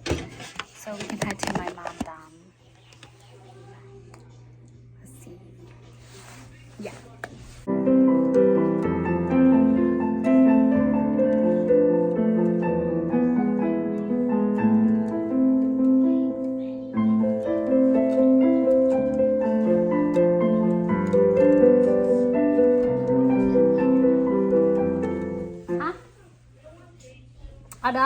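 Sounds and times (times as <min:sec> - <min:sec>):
slow piano melody: 0:07.7 - 0:26.1.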